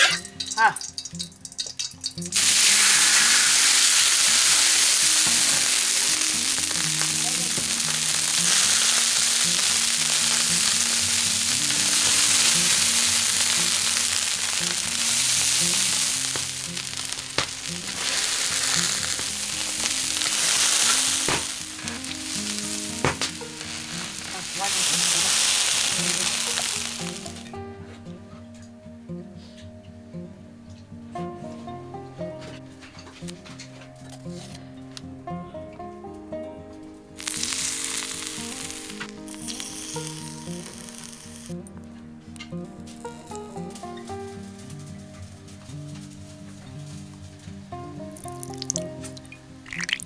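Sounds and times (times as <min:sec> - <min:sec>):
dumplings sizzling in hot oil: 0:00.0 - 0:27.6, 0:37.2 - 0:41.6, 0:48.1 - 0:50.0.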